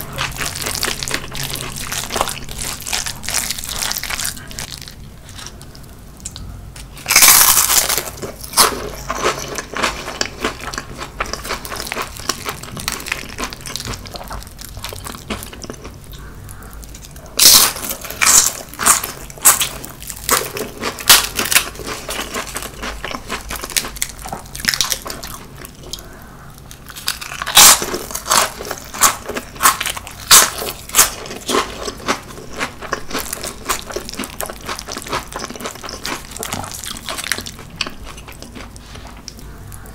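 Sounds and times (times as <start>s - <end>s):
crackly chewing crunches: 0.0s - 39.9s.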